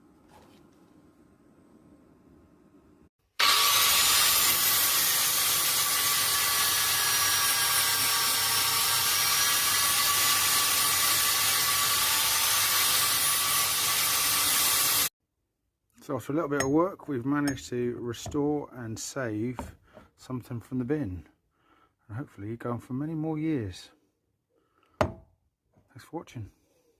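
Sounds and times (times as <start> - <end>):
power grinder grinding steel: 3.4 - 15.1.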